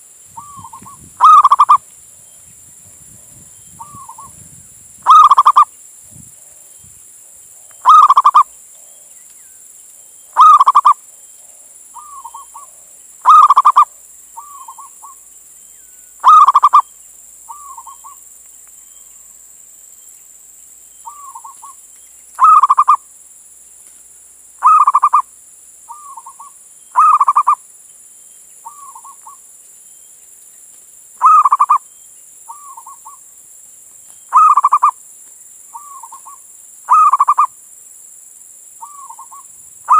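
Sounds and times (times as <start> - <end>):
faint hiss: 0.0 - 39.9
dove cooing: 0.4 - 1.8, 5.1 - 5.7, 7.8 - 8.5, 10.4 - 11.0, 12.0 - 15.2, 16.2 - 16.8, 22.4 - 23.0, 24.6 - 25.2, 25.9 - 27.6, 31.2 - 31.8, 34.3 - 35.0, 35.8 - 37.5.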